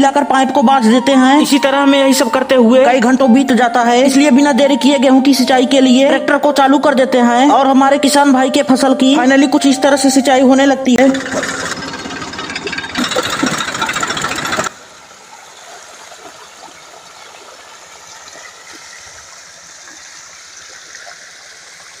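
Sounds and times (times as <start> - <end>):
tractor engine running: 11.0 - 15.0
pumped water flowing: 11.0 - 22.0.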